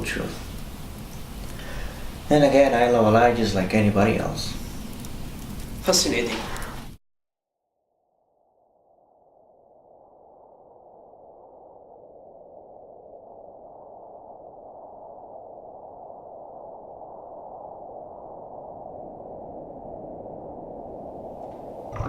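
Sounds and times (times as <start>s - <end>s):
muffled rain: 0.0s - 7.0s.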